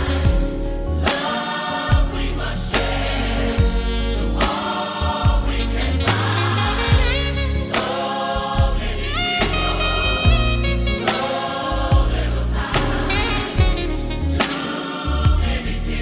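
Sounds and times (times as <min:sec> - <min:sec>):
gospel choir singing: 0:00.0 - 0:16.0
solo voice singing: 0:00.0 - 0:16.0
band with bass and drums: 0:08.6 - 0:11.3.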